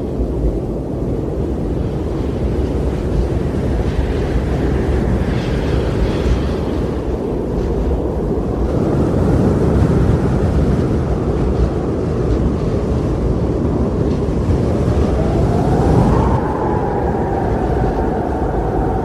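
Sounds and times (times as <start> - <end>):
low rushing noise: 13.2 - 19.0.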